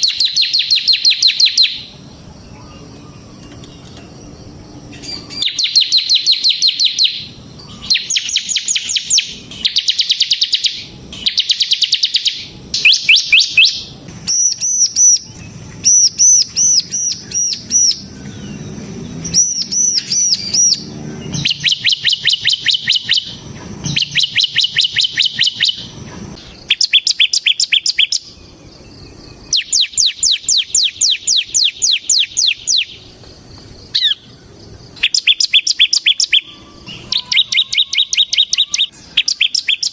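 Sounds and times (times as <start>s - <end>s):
looping whistled bird notes: 0.0s - 33.1s, 33.8s - 39.9s
bird singing fast trills: 0.0s - 33.2s, 33.8s - 39.9s.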